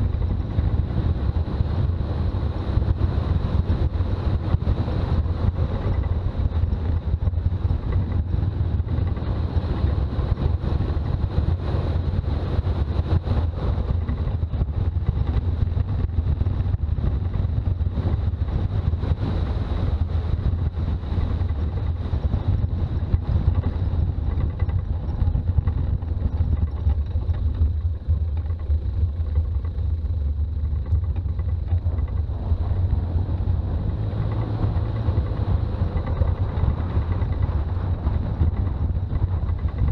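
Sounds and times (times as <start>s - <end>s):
vehicle engine and road drone: 0.0s - 39.9s.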